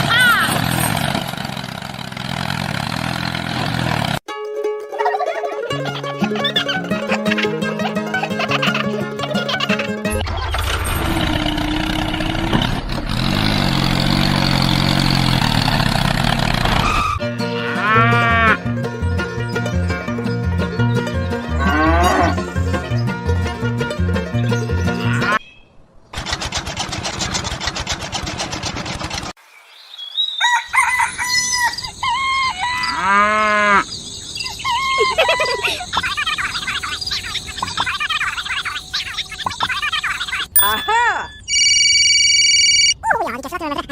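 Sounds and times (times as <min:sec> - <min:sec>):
small engine running: 0:00.0 - 0:04.2, 0:10.1 - 0:17.2, 0:26.2 - 0:29.4
chickens calling: 0:05.0 - 0:10.9, 0:19.2 - 0:23.2, 0:30.1 - 0:41.4
fast even rattle: 0:26.1 - 0:29.4
rooster crowing: 0:30.4 - 0:33.9.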